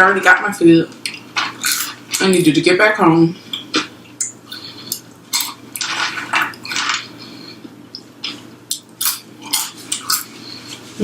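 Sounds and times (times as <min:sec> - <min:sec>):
crisp chewing of fried chicken: 0:03.5 - 0:11.0.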